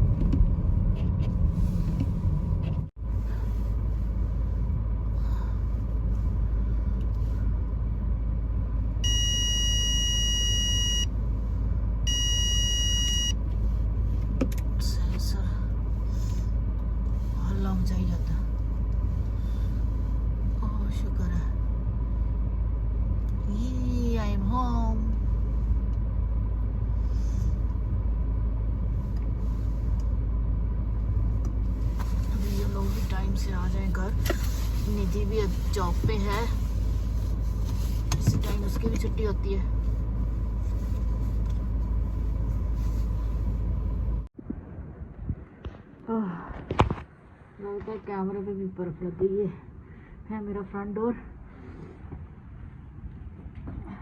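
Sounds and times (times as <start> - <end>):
car cabin rumble: 0.0 - 54.0
road noise: 0.0 - 54.0
electronic warning tones: 12.1 - 13.4.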